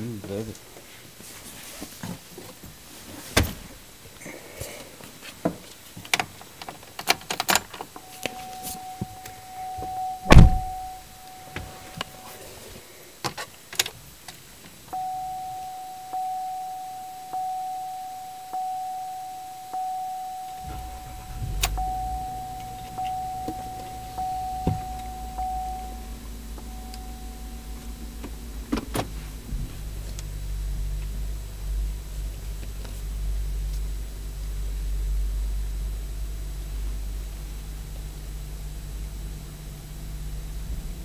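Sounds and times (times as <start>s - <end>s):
car engine starting and idling: 5.7s - 13.0s, 13.6s - 41.0s
dashboard warning chime: 8.0s - 12.7s, 14.9s - 29.4s.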